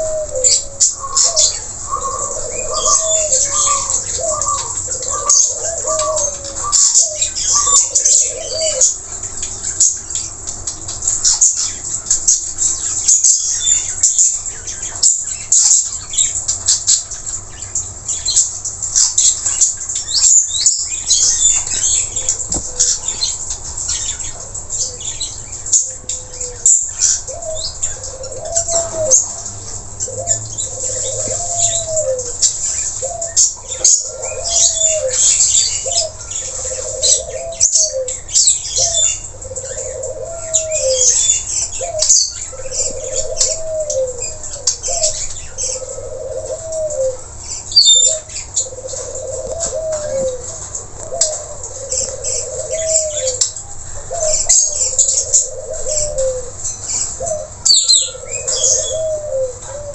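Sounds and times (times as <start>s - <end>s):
low arching parrot call: 0.0s - 9.0s.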